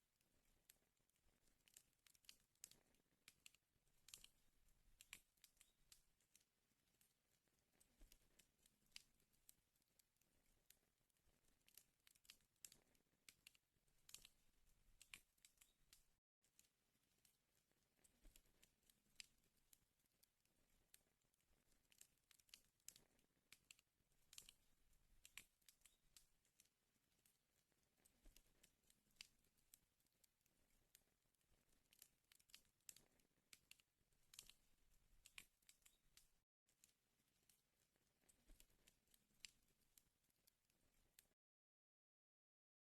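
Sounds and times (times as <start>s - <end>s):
wood fire crackling: 0.3s - 16.2s, 17.0s - 36.4s
burning wood crackling: 24.3s - 29.8s.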